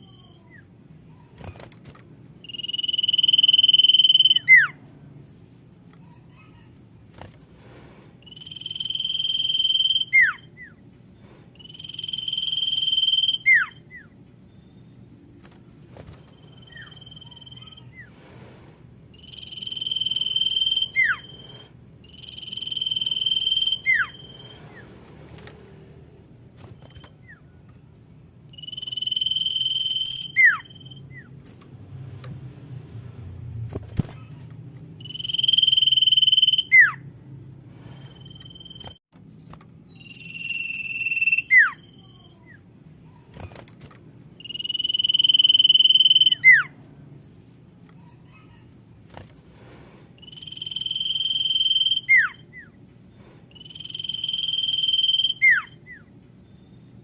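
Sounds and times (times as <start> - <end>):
bird whistle with downward slur: 19.2 - 24.6, 50.2 - 52.4, 53.6 - 56.0.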